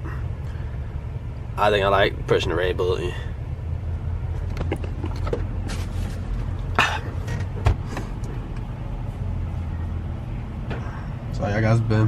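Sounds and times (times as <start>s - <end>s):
truck diesel engine rumbling: 0.0s - 12.0s.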